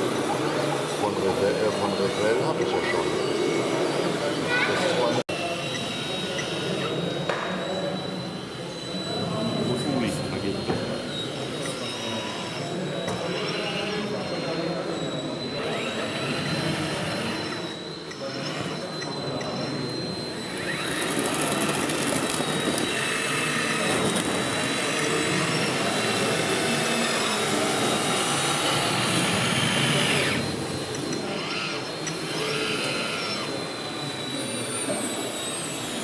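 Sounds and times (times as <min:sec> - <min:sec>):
small electric motors whirring: 0:00.0 - 0:36.0
thin whine: 0:16.2 - 0:36.0.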